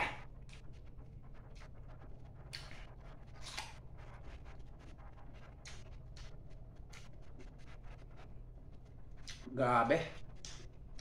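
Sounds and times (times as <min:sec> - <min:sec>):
low steady hum: 0:00.0 - 0:11.0
crunchy chewing: 0:02.5 - 0:03.8.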